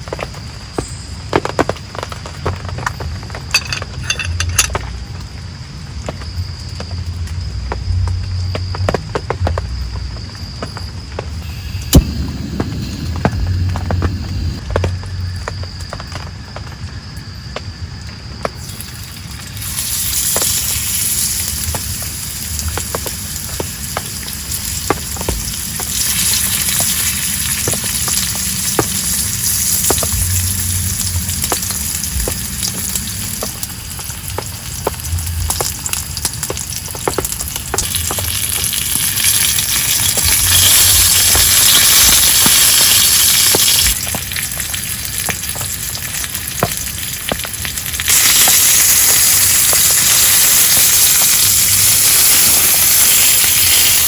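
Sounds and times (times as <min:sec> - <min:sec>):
heavy rain pouring: 0:11.3 - 0:15.6, 0:18.5 - 0:53.9
raindrops ticking: 0:18.4 - 0:49.4.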